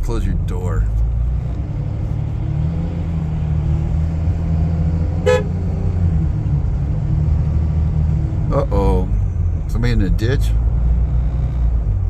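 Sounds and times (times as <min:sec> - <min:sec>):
vehicle engine and road rumble: 0:00.0 - 0:12.0
short horn toot: 0:05.2 - 0:05.6.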